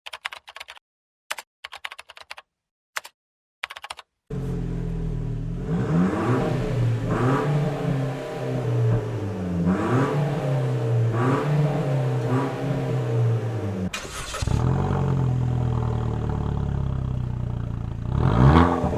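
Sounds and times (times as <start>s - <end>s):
clicking like typing: 0.1s - 2.4s, 3.0s - 4.1s
car engine revving and idling: 4.3s - 18.9s.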